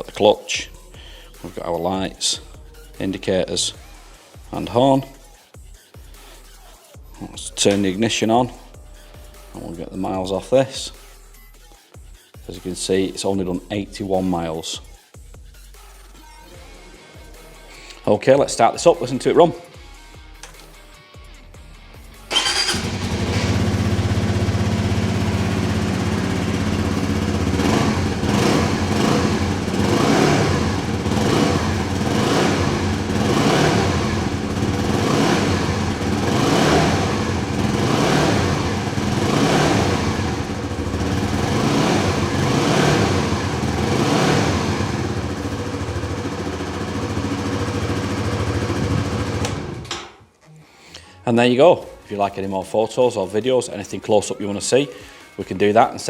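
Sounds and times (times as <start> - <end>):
motorcycle engine revving: 22.3 - 50.1.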